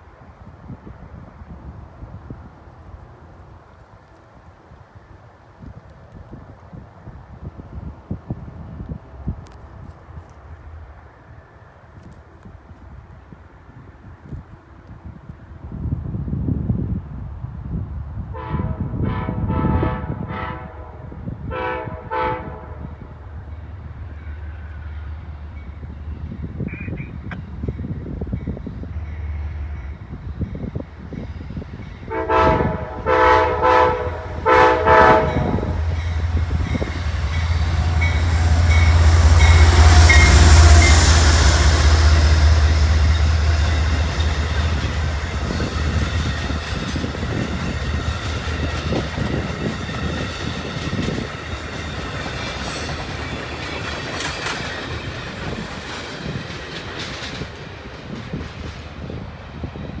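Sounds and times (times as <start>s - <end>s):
train horn blasts: 18.3s - 23.1s, 32.0s - 48.1s
locomotive engine rumble: 22.7s - 59.6s
train cars clickety-clack: 25.5s - 60.0s.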